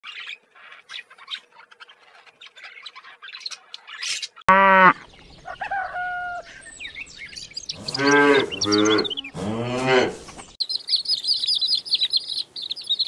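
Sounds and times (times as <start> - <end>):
loud pitched animal call: 7.7 - 10.2.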